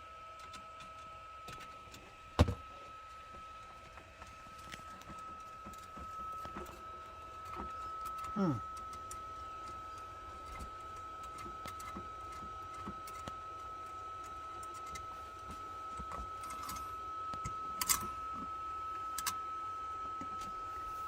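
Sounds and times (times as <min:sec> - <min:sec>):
steady high-pitched tone: 0:04.5 - 0:10.6.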